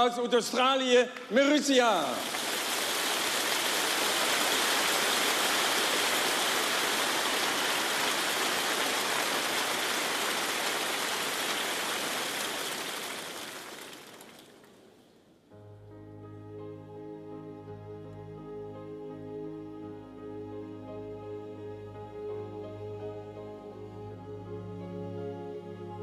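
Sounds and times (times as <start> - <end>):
audience applauding: 1.2 - 14.8.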